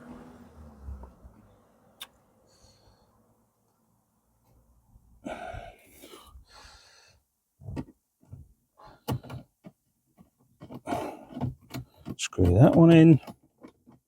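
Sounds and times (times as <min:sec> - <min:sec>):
person exhaling: 0:05.2 - 0:07.2
clicks of plastic trim and screws: 0:09.0 - 0:14.0.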